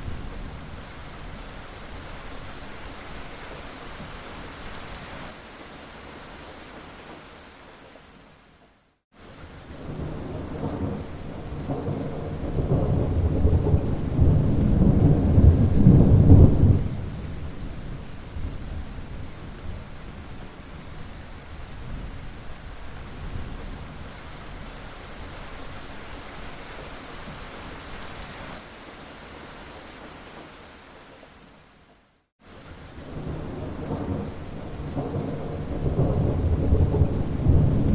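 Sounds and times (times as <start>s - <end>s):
steady rain: 0.0s - 37.9s
deep roll of thunder: 9.7s - 19.1s, 33.0s - 37.9s.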